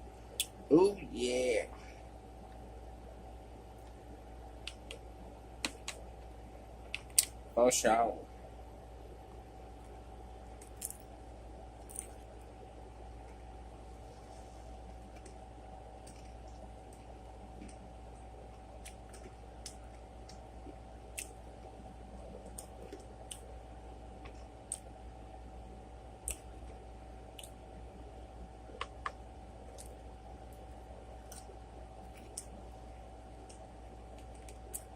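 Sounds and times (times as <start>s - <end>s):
faint steady hum: 0.0s - 34.9s
person chewing food: 18.5s - 21.4s, 31.2s - 32.6s.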